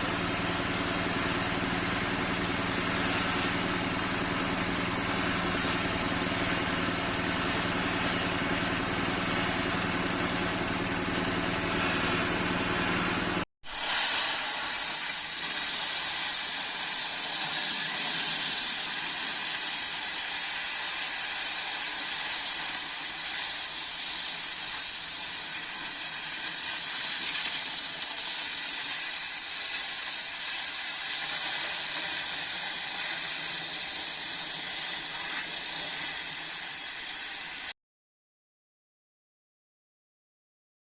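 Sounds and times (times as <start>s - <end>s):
engine running: 0.0s - 13.4s
gas cutting torch hissing: 0.0s - 37.7s.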